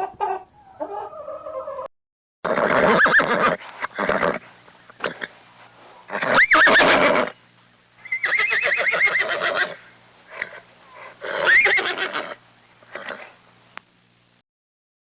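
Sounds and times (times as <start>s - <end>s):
horse whinnying: 2.5s - 4.4s, 6.1s - 7.4s, 8.0s - 13.3s.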